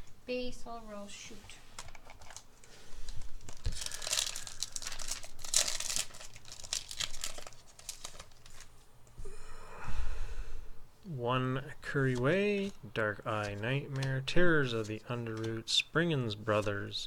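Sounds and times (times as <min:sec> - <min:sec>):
foil wrapper tearing and crinkling: 0:03.1 - 0:08.7.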